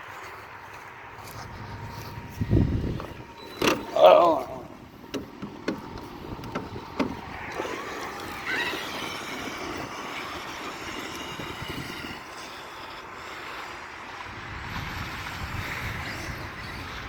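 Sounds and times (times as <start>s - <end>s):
electric motor whining: 1.2s - 17.0s.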